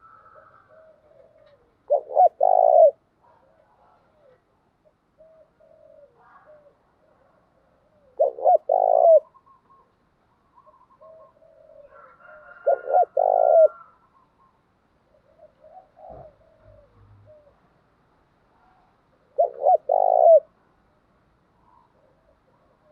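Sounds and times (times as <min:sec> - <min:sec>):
doves cooing: 0:00.0 - 0:04.4, 0:05.2 - 0:06.8, 0:07.8 - 0:09.9, 0:10.6 - 0:14.0, 0:15.1 - 0:17.6, 0:19.3 - 0:20.5.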